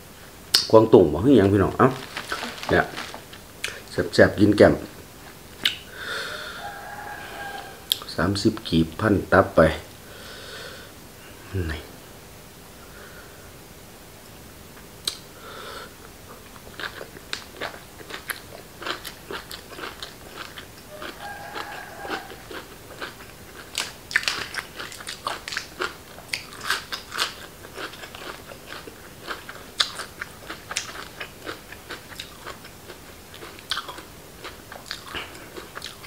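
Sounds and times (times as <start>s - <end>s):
crunchy vegetables chewed: 1.4s - 4.0s, 16.3s - 36.0s
wet mouth clicks: 15.0s - 15.2s.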